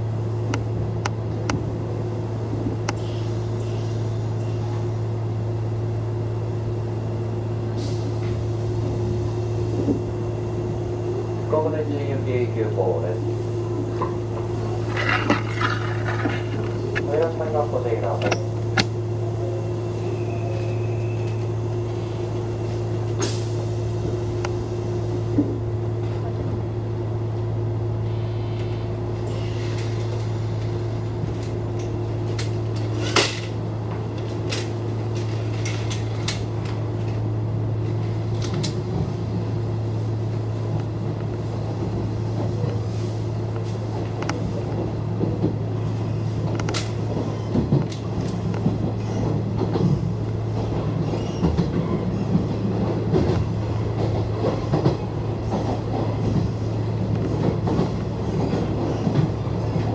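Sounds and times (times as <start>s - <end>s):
train interior hum: 0.0s - 59.9s
wheels clicking over rail joints: 14.0s - 18.9s.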